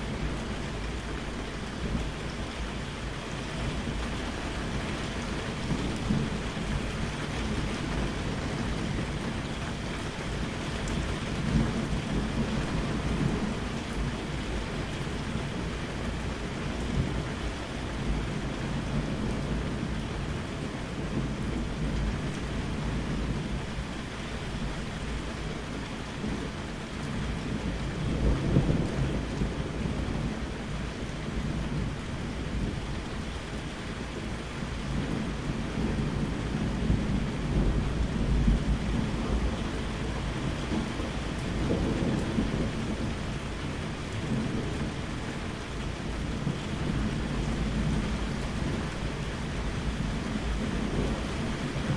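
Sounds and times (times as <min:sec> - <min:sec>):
low rolling thunder: 0:00.0 - 0:51.9
steady rain falling: 0:00.0 - 0:51.9.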